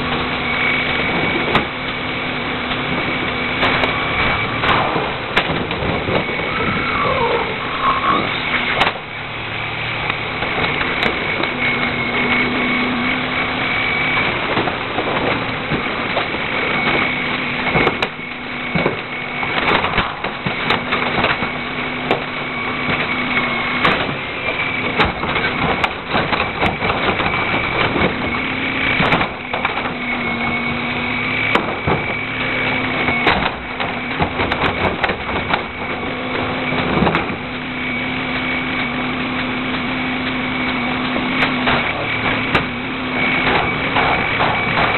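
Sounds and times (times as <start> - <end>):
garbage truck engine whining: 0.0 - 44.9
sharp knocks and clatters: 2.6 - 6.4, 14.0 - 44.9.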